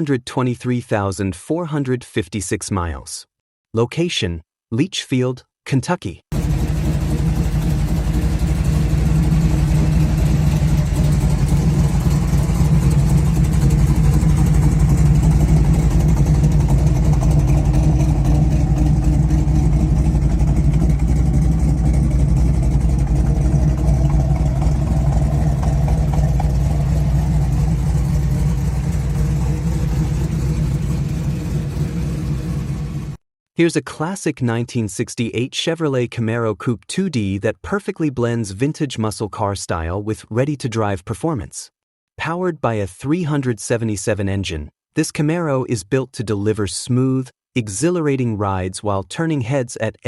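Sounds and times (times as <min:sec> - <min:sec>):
car engine idling: 0:06.3 - 0:33.2.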